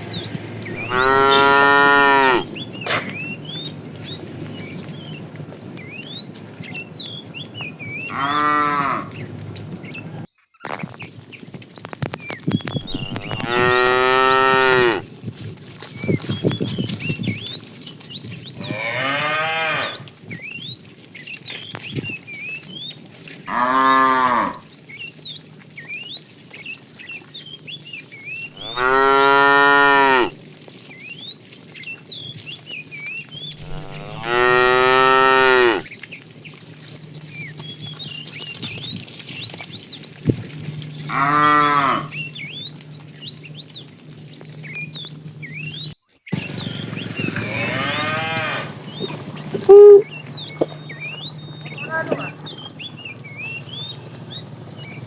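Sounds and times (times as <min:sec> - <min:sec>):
cattle mooing: 0:00.0 - 0:03.3, 0:08.0 - 0:09.3, 0:12.8 - 0:15.1, 0:18.6 - 0:20.1, 0:23.5 - 0:24.7, 0:28.5 - 0:30.4, 0:33.5 - 0:35.9, 0:40.5 - 0:43.5, 0:47.2 - 0:50.2, 0:50.8 - 0:52.8.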